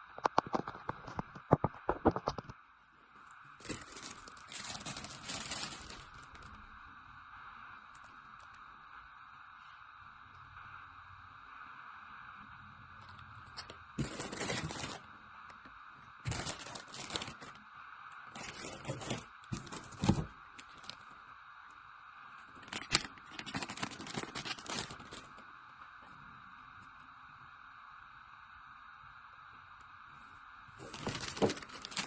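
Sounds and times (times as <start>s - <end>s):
faint steady hum: 0.0s - 32.0s
tearing crinkling noises: 3.6s - 6.6s, 13.6s - 15.1s, 16.2s - 17.6s, 18.3s - 21.0s, 22.5s - 25.4s, 30.8s - 32.0s.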